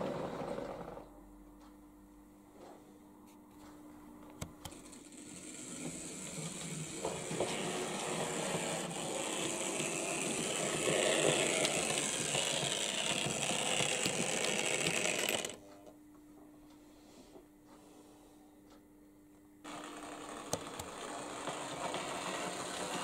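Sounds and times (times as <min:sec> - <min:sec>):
model train rattling on track: 0:05.1 - 0:15.6, 0:19.7 - 0:23.0.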